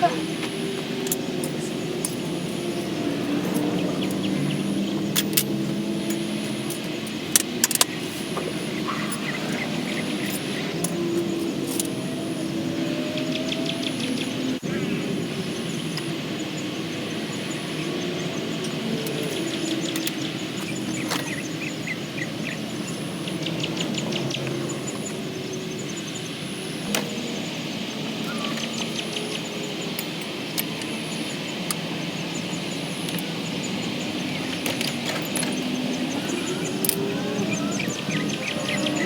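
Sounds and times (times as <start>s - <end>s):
birds chirping: 0.0s - 39.0s
distant motor hum: 0.0s - 39.0s.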